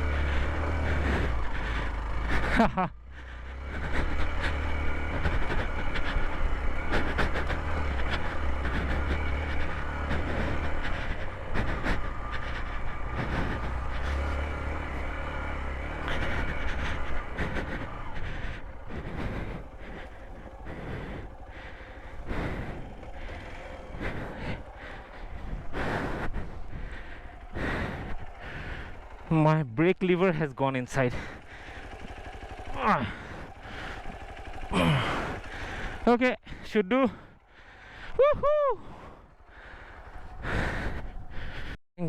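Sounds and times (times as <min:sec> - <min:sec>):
motorcycle engine running: 0:00.0 - 0:41.8.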